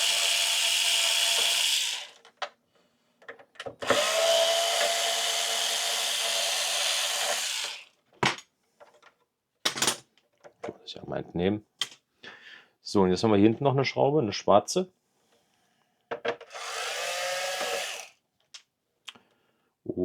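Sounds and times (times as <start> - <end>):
electric screwdriver running: 0.0 - 2.2, 3.8 - 7.9, 16.5 - 18.2.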